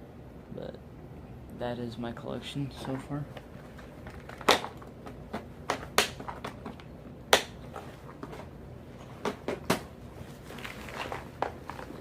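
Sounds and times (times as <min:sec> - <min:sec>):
plastic boxes clicking and knocking: 0:03.8 - 0:08.5, 0:09.2 - 0:09.9.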